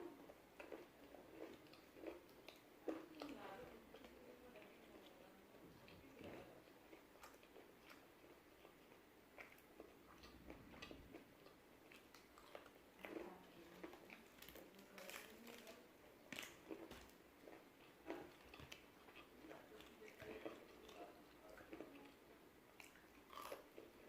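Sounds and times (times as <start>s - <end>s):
crunching fried chicken: 6.2s - 22.2s, 22.8s - 23.9s.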